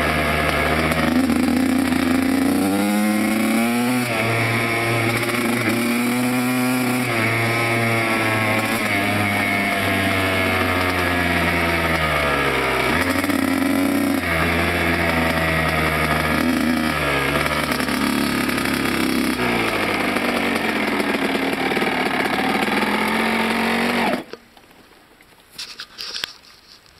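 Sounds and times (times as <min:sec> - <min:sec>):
motocross bike engine revving: 0:00.0 - 0:24.4.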